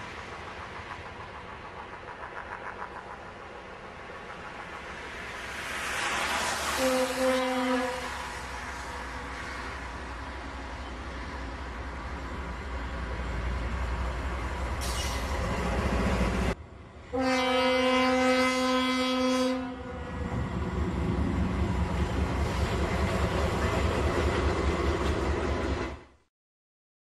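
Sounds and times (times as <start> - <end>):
snowplow train ploughing snow: 0.0 - 26.2
train horn: 6.6 - 8.4, 17.1 - 20.1.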